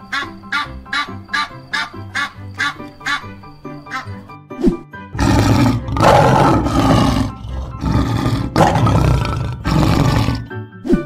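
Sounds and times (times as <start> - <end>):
lion roaring: 5.2 - 10.5.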